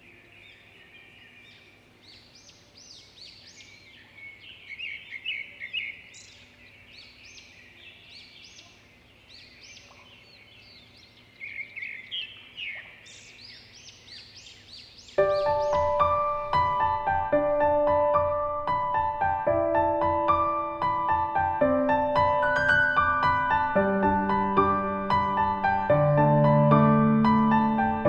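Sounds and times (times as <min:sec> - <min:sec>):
birds chirping in chorus: 0:00.0 - 0:17.3.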